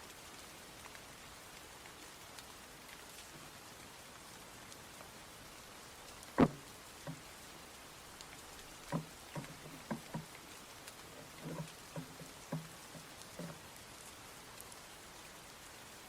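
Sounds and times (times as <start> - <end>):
light rain hissing: 0.0 - 16.0
drops knocking on hard surface: 6.4 - 7.2, 8.9 - 10.3, 11.4 - 13.6.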